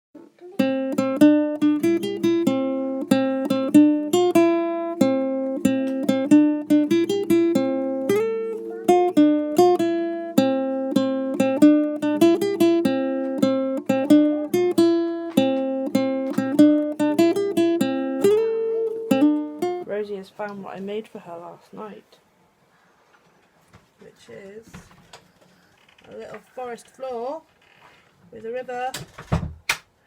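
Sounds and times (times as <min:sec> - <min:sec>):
acoustic guitar melody: 0:00.2 - 0:20.8.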